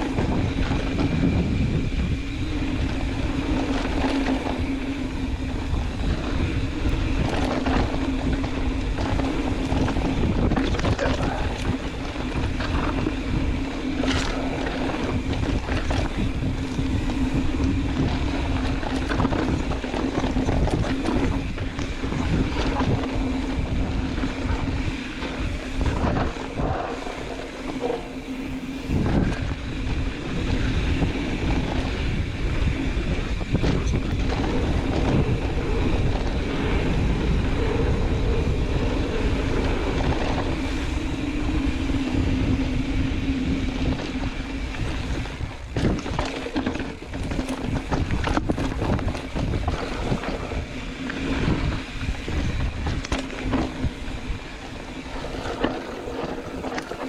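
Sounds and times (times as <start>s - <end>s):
wind buffeting microphone: 0.0s - 57.0s
tyres rumbling over dirt and rock: 5.5s - 57.0s.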